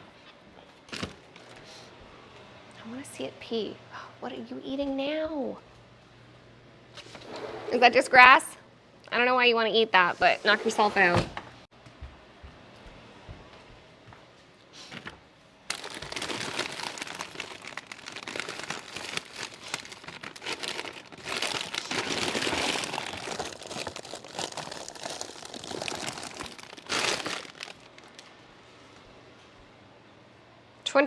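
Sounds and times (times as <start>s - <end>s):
packaging crinkling: 15.7s - 28.3s.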